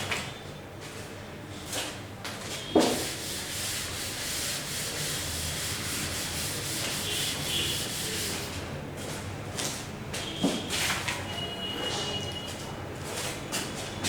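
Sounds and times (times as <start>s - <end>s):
chalk tapping on board: 2.8s - 8.5s.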